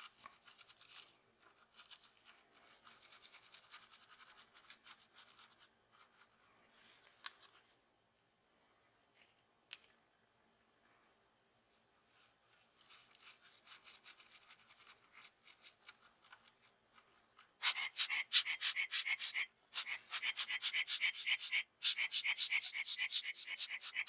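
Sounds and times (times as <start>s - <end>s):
rapid rasping rubbing strokes: 17.6s - 24.0s.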